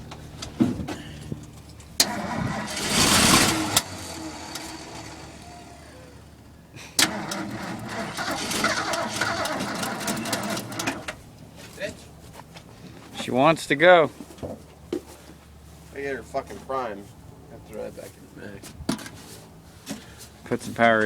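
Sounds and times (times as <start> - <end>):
truck engine cranking: 0.0 - 11.4.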